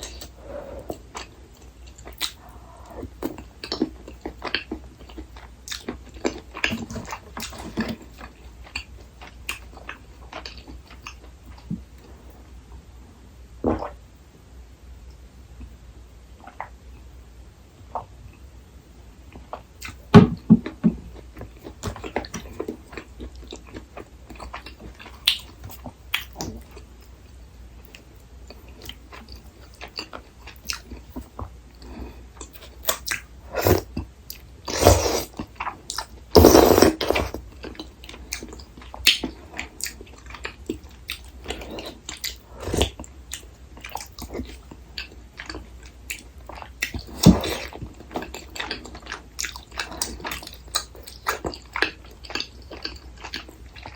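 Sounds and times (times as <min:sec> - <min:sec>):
chewing and biting: 0:27.9 - 0:53.9.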